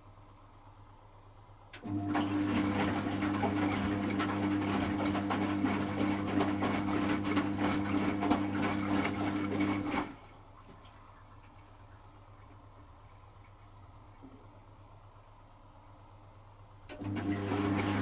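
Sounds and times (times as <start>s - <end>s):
washing machine motor hum: 1.8s - 18.0s
water and clothes sloshing in drum: 2.0s - 14.7s.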